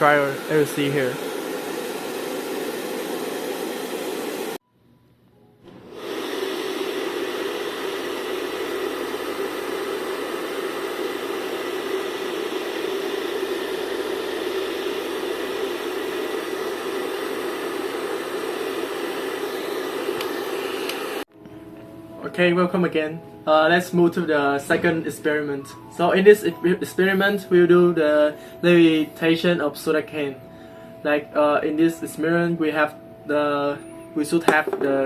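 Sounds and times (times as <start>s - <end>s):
hair dryer blowing: 0.0s - 4.6s, 5.7s - 21.3s, 34.5s - 35.0s.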